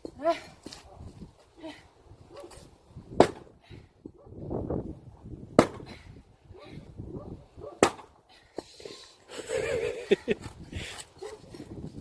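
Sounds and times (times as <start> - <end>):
axe splitting firewood: 3.1 - 3.6, 5.5 - 6.0, 7.8 - 8.7.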